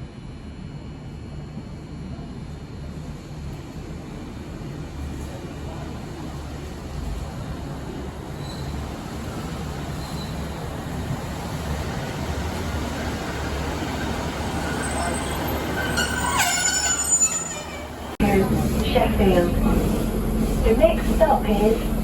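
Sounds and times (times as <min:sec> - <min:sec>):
train wheels rumbling on track: 0:00.4 - 0:22.0
high wheel squealing: 0:14.0 - 0:18.1.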